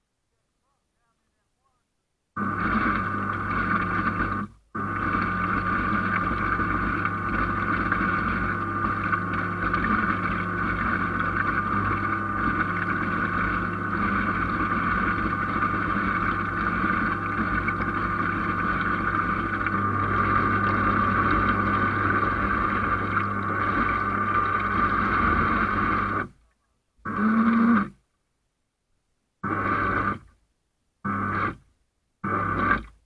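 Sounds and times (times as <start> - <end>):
boat motor running: 2.4 - 26.3.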